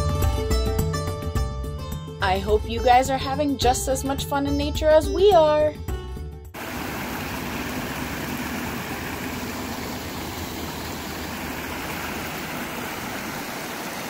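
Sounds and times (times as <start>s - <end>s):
river water rushing: 6.6s - 14.0s.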